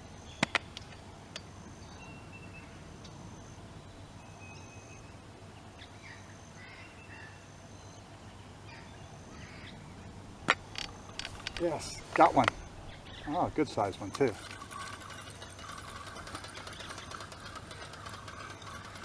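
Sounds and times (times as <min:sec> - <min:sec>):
faint bird calls: 0:05.7 - 0:14.4
low background rumble: 0:08.2 - 0:17.0.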